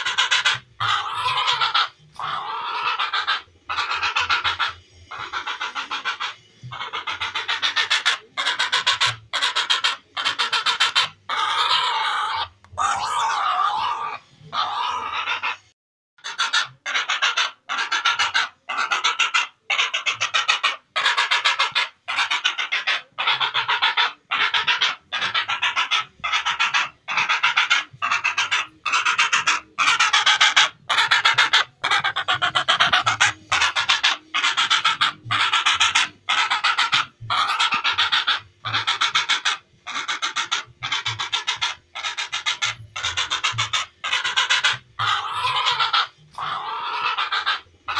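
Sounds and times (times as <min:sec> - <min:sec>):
heron harsh raspy calls: 0:00.0 - 0:47.9.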